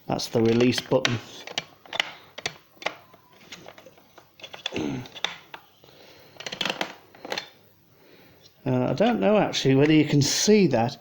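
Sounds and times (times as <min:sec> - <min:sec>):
plastic parts clicking and knocking: 0:00.4 - 0:07.6.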